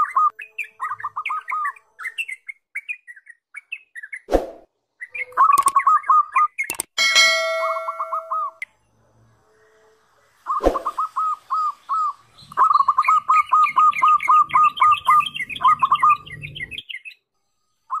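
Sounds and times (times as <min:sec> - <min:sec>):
bird chirping: 0:00.0 - 0:04.3, 0:04.9 - 0:08.6, 0:10.5 - 0:17.3
higher bird chirping: 0:05.0 - 0:08.6.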